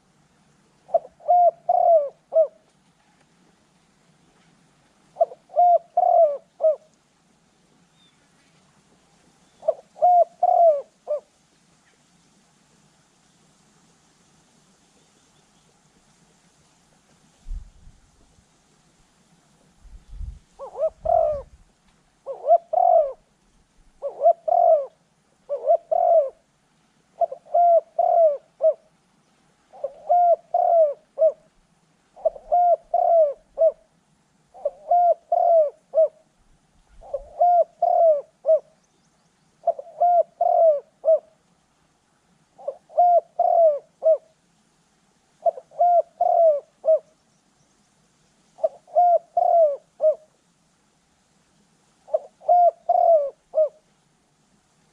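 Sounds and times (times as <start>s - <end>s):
dove cooing: 0.8s - 2.7s, 5.2s - 7.0s, 9.6s - 11.3s, 19.6s - 21.6s, 22.2s - 23.3s, 23.9s - 26.5s, 27.2s - 29.0s, 29.7s - 36.3s, 36.9s - 38.9s, 39.6s - 41.4s, 42.6s - 44.4s, 45.4s - 47.2s, 48.6s - 50.4s, 52.1s - 53.9s.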